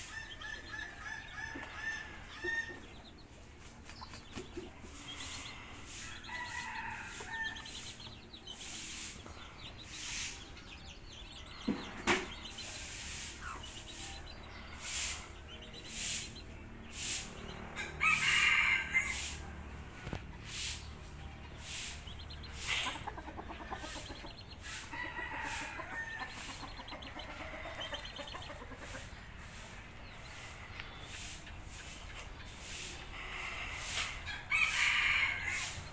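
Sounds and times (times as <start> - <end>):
hens clucking: 0.0 - 35.9
rooster crowing: 17.8 - 19.5, 24.9 - 26.5, 34.3 - 35.9.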